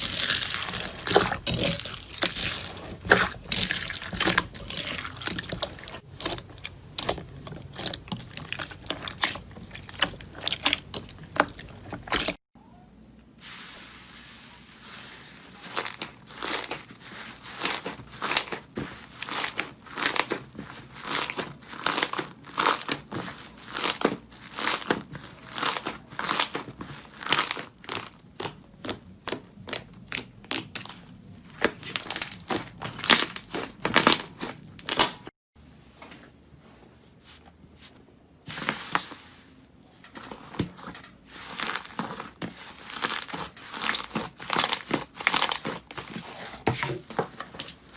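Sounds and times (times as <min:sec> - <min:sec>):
slime crackling and popping: 0:17.6 - 0:35.3, 0:42.9 - 0:45.8.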